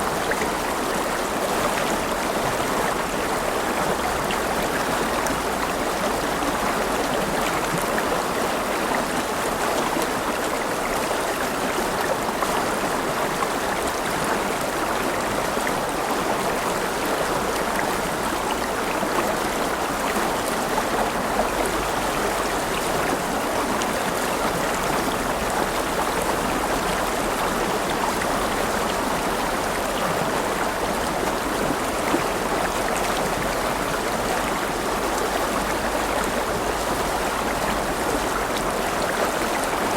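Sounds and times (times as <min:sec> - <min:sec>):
river water splashing over rocks: 0:00.0 - 0:39.9.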